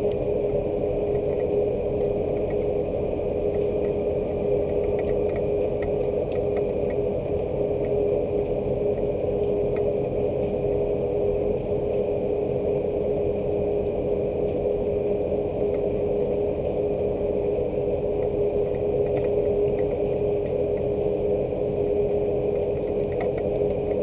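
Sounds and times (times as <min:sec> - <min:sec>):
low mechanical hum: 0:00.0 - 0:24.0
faint drip ticks: 0:01.1 - 0:02.8, 0:03.5 - 0:04.0, 0:04.6 - 0:10.0, 0:18.2 - 0:20.9, 0:22.0 - 0:24.0.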